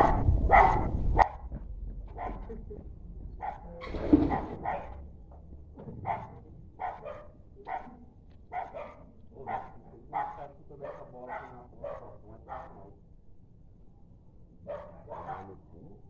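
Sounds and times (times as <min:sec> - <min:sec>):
dog barking: 0:00.0 - 0:02.6, 0:03.4 - 0:05.0, 0:05.9 - 0:12.9, 0:14.6 - 0:15.6.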